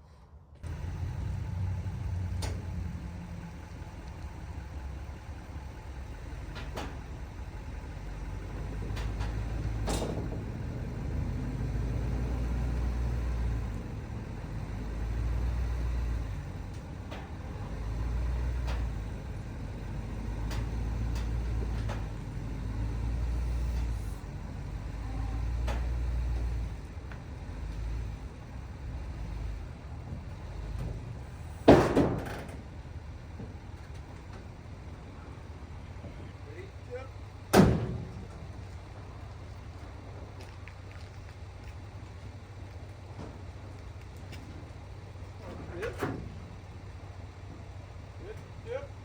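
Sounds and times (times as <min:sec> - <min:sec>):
vehicle engine rumbling: 0:00.0 - 0:49.0
sharp knocks and clanks: 0:31.6 - 0:32.6.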